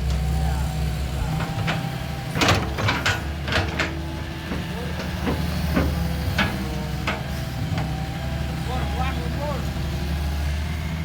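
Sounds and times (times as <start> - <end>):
diesel engine running: 0.0 - 11.0
machine clanks: 1.2 - 7.4.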